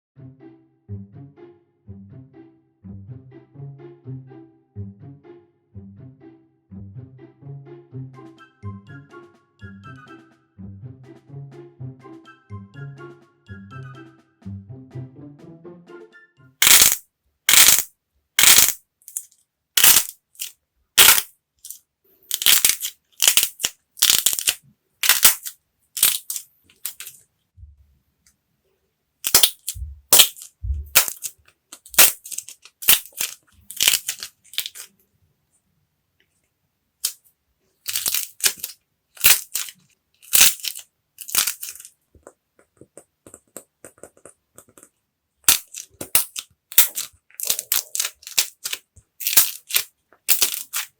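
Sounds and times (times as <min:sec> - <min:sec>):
hardened clay crunching: 0:16.6 - 0:21.3, 0:22.3 - 0:27.2, 0:29.3 - 0:34.9, 0:37.9 - 0:50.9.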